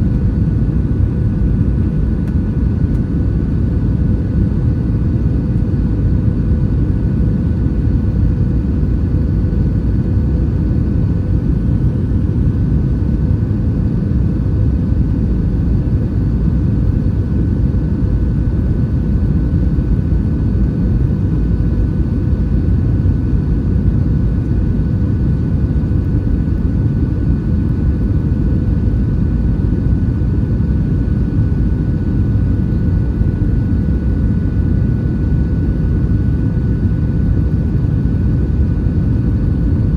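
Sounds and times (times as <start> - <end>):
jet engine and airflow roar: 0.0 - 39.9.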